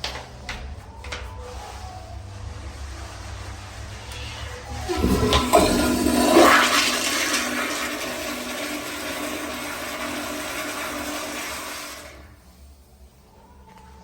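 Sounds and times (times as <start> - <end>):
toilet flushing: 3.5 - 12.6.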